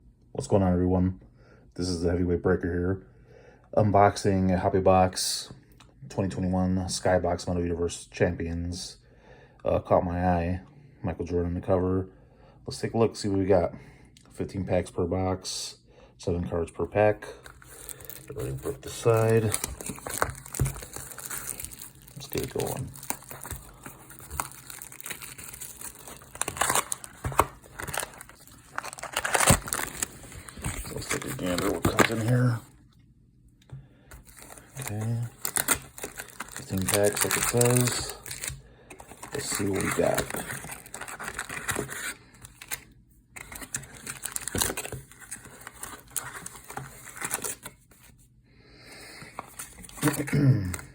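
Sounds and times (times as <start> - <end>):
plastic wrapping crinkling and tearing: 17.4 - 32.6, 34.2 - 42.8, 43.4 - 47.7, 49.4 - 50.8.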